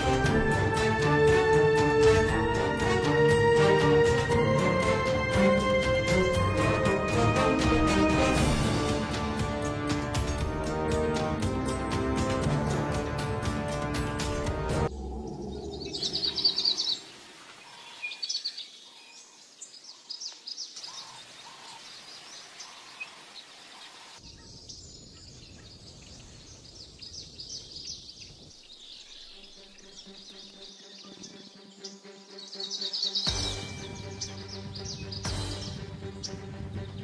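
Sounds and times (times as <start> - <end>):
music: 0.0 - 14.9, 29.3 - 37.0
birds chirping in high trills: 14.7 - 37.0.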